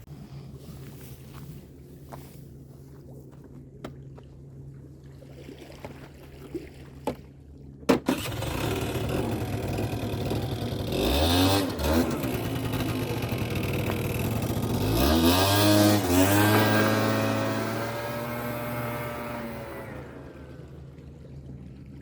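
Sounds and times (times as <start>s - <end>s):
scooter engine revving: 8.1s - 20.6s.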